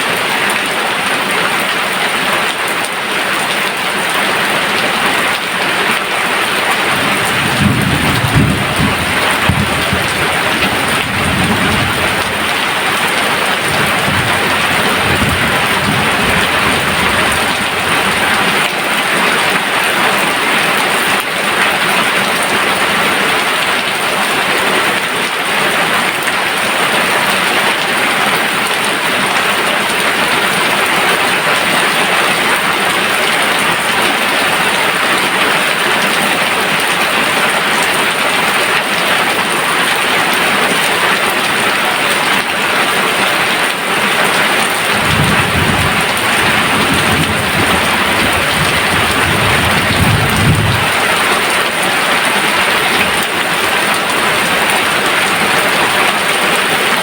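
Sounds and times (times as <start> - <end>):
heavy rain pouring: 0.0 - 57.0
thunder rumbling: 6.8 - 18.7, 44.8 - 51.6.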